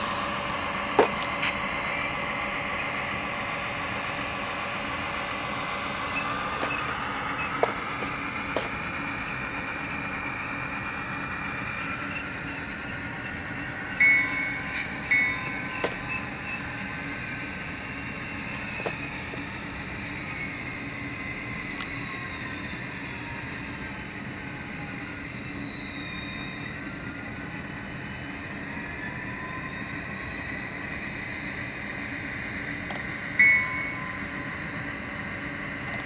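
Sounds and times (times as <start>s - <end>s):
locomotive bell: 0.0s - 23.0s, 30.2s - 36.0s
model locomotive diesel sound: 0.0s - 36.0s.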